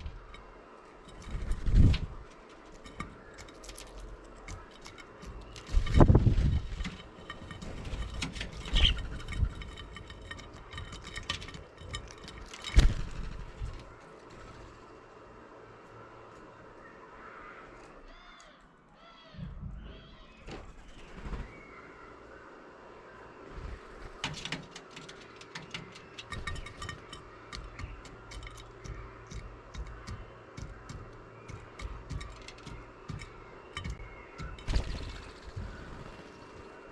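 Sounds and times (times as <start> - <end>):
thumps: 1.1 - 14.0
birds pecking beak taps: 2.3 - 6.2, 6.8 - 14.0, 24.0 - 36.8.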